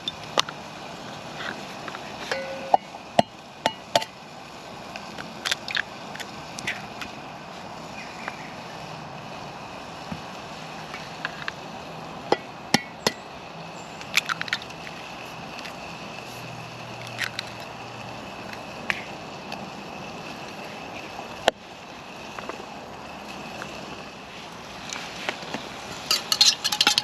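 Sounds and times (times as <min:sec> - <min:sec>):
steady background hiss: 0:00.0 - 0:27.0
camp gear knocking and clinking: 0:02.3 - 0:04.1, 0:25.9 - 0:27.0.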